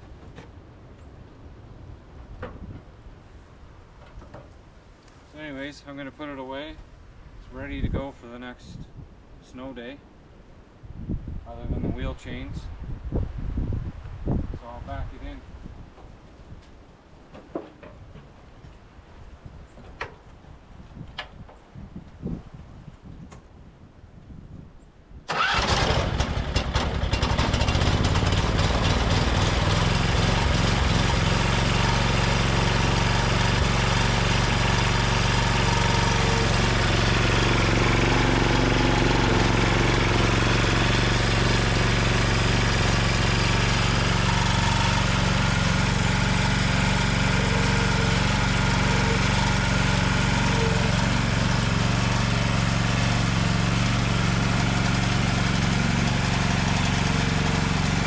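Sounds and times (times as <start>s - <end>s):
starter cranking engine: 25.3s - 52.7s
tractor engine running: 25.3s - 58.0s.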